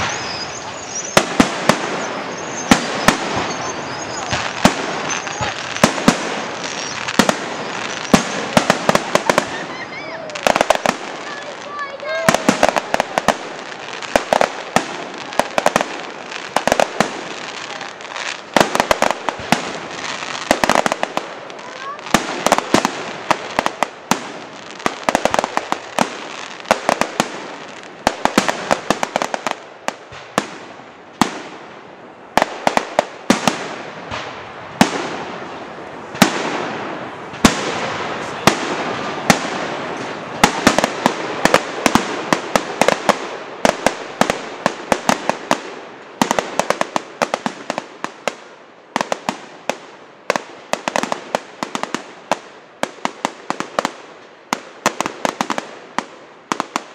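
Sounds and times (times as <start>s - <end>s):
hiss of burning shells: 0.0s - 9.6s
fireworks banging and crackling: 0.0s - 56.9s.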